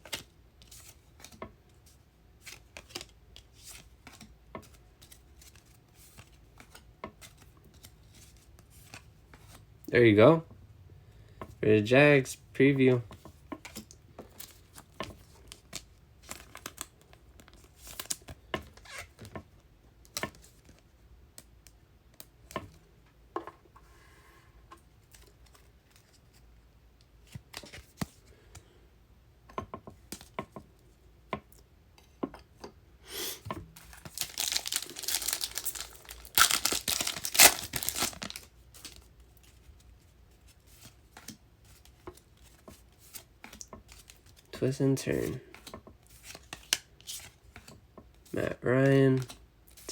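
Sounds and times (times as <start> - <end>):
foil wrapper tearing and crinkling: 33.8 - 39.0.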